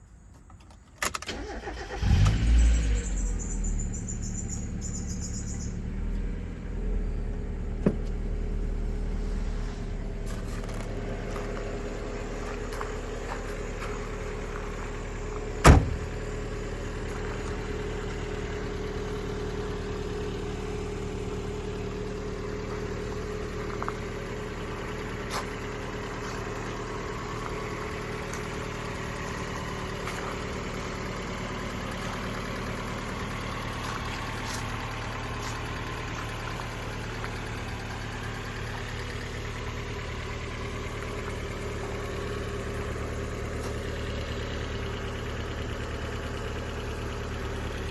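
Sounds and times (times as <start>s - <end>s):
engine idling: 1.3s - 47.9s.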